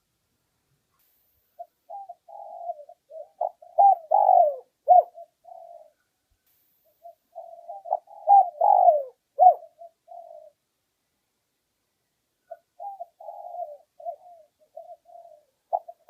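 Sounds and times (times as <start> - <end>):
dove cooing: 1.6 - 6.1, 7.0 - 10.6, 12.5 - 16.0.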